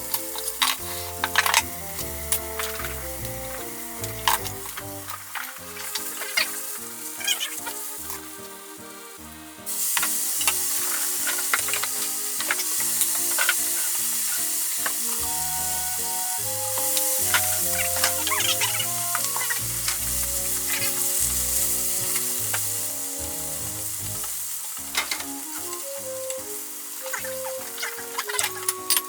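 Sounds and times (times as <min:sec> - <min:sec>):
utensil scraping a pan: 0:00.0 - 0:08.3, 0:16.6 - 0:25.8
food sizzling in a frying pan: 0:00.0 - 0:08.7, 0:09.7 - 0:29.0
soft background music: 0:00.0 - 0:29.0.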